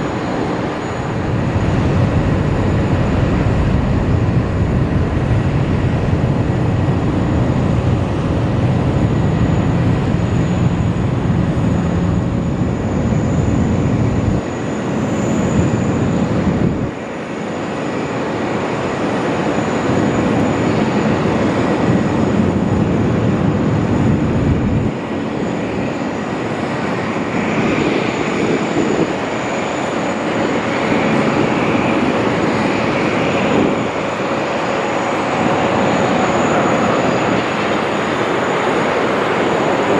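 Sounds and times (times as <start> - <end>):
jet engine noise: 0.0 - 39.9
thin high whine: 20.1 - 39.9.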